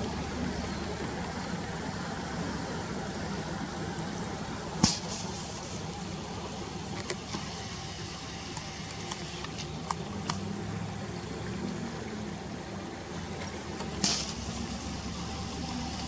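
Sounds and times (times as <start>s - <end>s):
steady low hum: 0.0s - 16.0s
faint sharp clicks: 8.5s - 10.5s.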